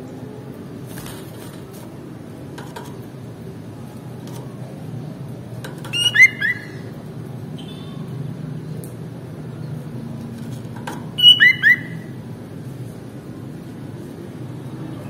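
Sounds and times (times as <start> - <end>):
bird chirping: 5.8 - 7.0, 11.1 - 12.2.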